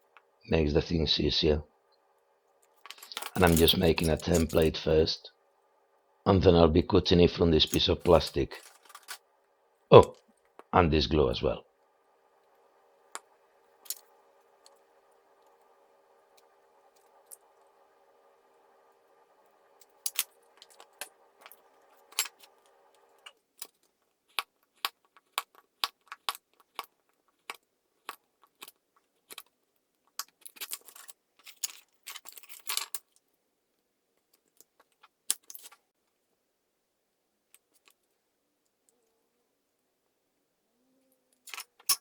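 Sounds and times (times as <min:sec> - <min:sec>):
steady low hum: 0:00.0 - 0:23.3.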